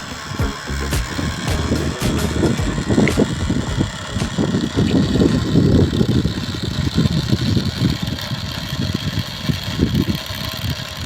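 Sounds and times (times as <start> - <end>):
toy helicopter motor fluttering: 2.3 - 11.0.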